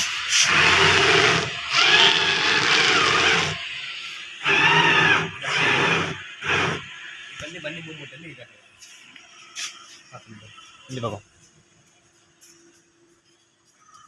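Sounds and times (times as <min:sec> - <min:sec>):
hydraulic pump motor humming: 0:00.0 - 0:07.0
high motor whine: 0:00.0 - 0:13.8.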